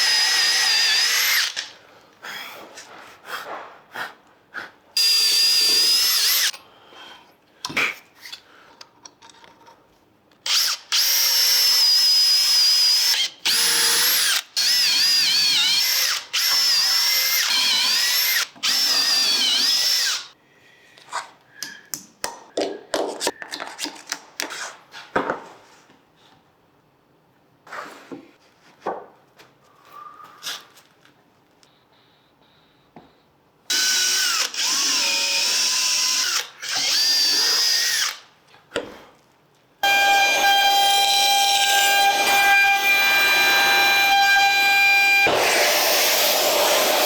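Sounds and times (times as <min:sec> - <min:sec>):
power drill whining: 0:00.0 - 0:01.7, 0:10.5 - 0:20.4, 0:33.7 - 0:38.2, 0:39.8 - 0:47.0.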